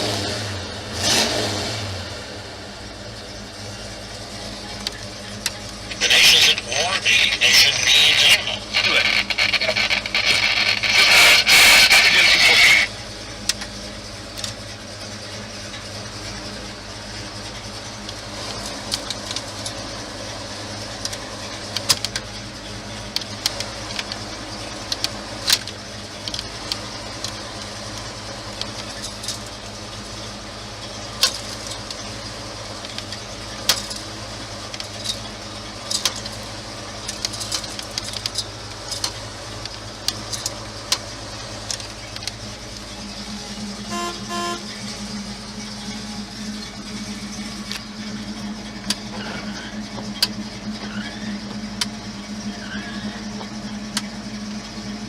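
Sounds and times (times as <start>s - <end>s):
car engine idling: 0.0s - 55.0s
clicks and light rattles: 4.6s - 6.3s, 13.4s - 14.7s, 18.0s - 19.8s, 21.0s - 22.4s, 23.0s - 29.8s, 30.8s - 43.0s, 49.8s - 52.1s.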